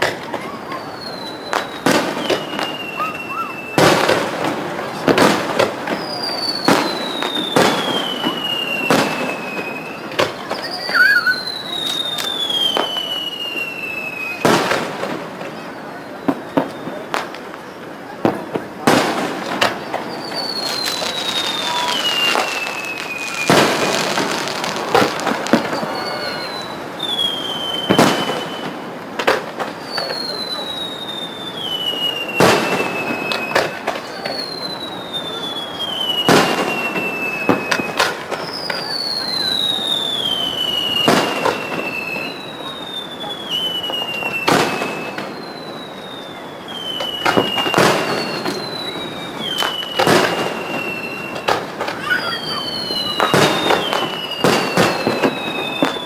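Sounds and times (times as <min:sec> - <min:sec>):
firework falling whistle: 0:00.0 - 0:17.7, 0:18.9 - 0:56.0
firework crackling: 0:00.0 - 0:56.0
firework bang: 0:01.2 - 0:13.2, 0:18.2 - 0:30.2, 0:44.4 - 0:45.4, 0:47.0 - 0:56.0.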